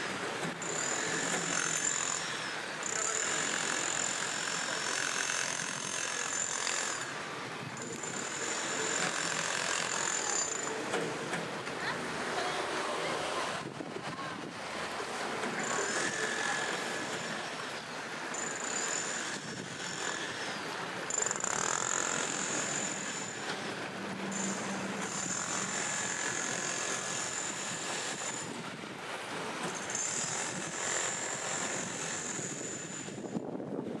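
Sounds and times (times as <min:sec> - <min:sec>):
river water rushing: 0:06.2 - 0:19.3, 0:20.0 - 0:32.3.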